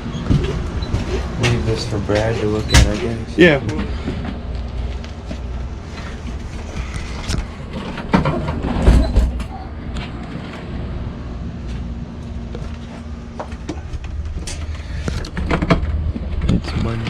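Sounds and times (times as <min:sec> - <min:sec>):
knocks and clatter: 0:00.0 - 0:10.7, 0:12.5 - 0:17.0
steady low hum: 0:00.0 - 0:17.0.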